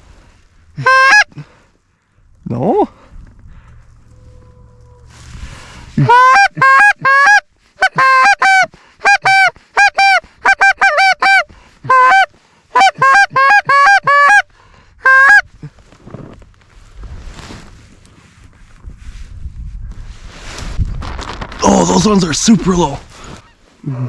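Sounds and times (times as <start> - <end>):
goose call honks and clucks: 0.8 - 1.5, 6.0 - 15.7.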